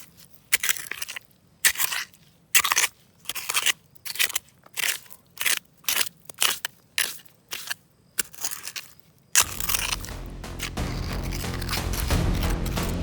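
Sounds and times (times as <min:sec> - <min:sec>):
background music: 0:09.4 - 0:13.0.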